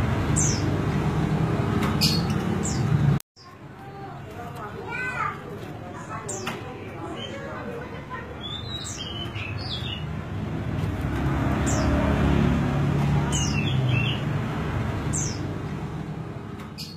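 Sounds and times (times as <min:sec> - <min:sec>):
bird calling high chirps: 0:08.4 - 0:10.1.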